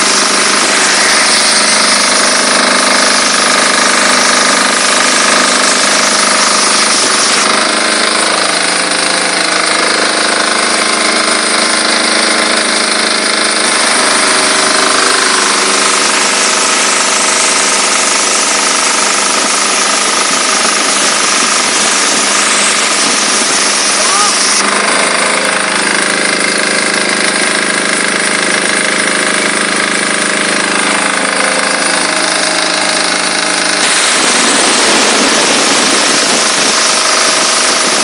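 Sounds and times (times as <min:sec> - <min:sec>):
loud hiss: 0:00.0 - 0:07.5, 0:13.8 - 0:25.8, 0:30.7 - 0:38.0
pressure washer engine drone: 0:00.0 - 0:38.0
higher hiss: 0:33.8 - 0:36.8.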